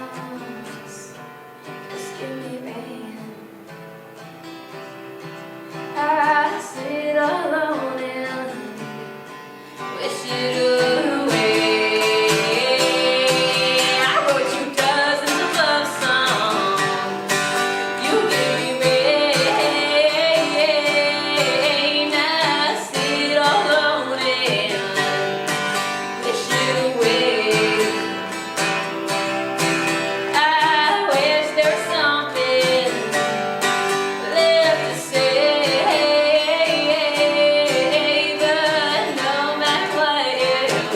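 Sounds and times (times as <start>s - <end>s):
woman singing: 0.0s - 3.8s, 5.8s - 28.9s, 30.2s - 40.9s
strummed guitar: 0.0s - 40.9s.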